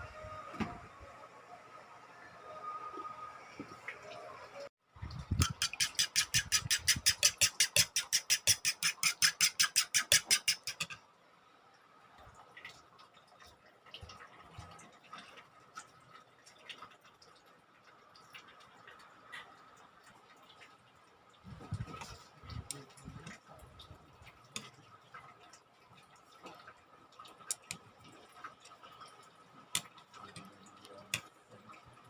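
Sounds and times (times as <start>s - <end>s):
kitchen utensil striking rapidly: 5.4s - 11.0s.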